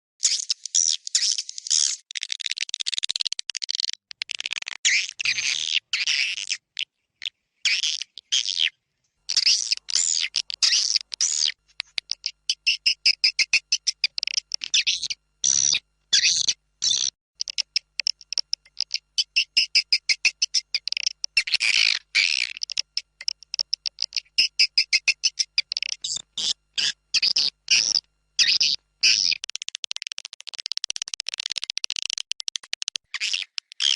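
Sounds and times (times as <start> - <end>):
rapid clicking trills: 17.4 - 28.0, 29.0 - 33.9.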